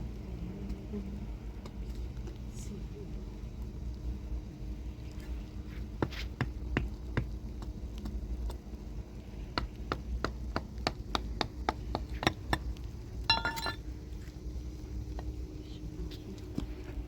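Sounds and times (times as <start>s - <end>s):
ringing clink: 13.3s - 13.8s.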